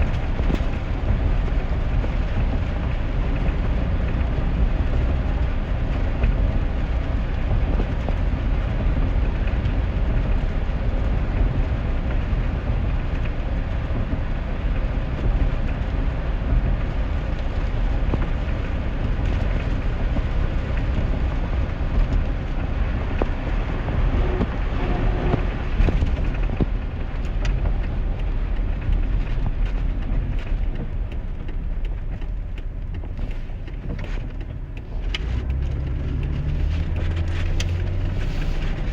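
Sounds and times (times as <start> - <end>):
engine and tyres rumbling: 0.0 - 38.9
rain and spray hissing: 34.8 - 38.9.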